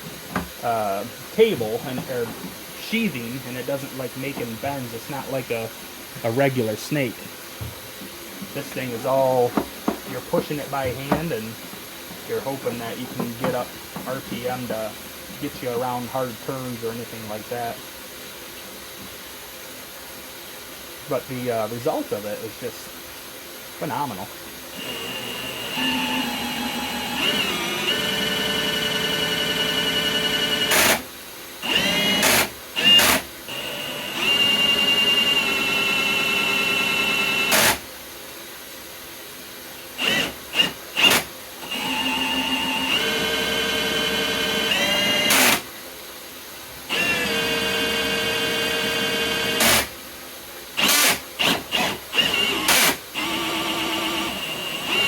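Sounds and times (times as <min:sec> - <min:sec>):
drill motor whine: 0:12.4 - 0:14.7, 0:24.8 - 0:31.0, 0:31.6 - 0:37.8, 0:40.0 - 0:45.6, 0:46.9 - 0:49.9, 0:50.8 - 0:55.0.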